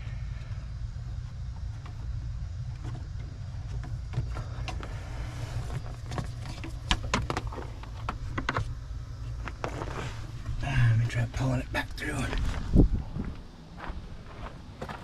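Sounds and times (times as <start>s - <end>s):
steady low hum: 0.0s - 15.0s
plastic tubing clicks and rustles: 5.7s - 8.7s.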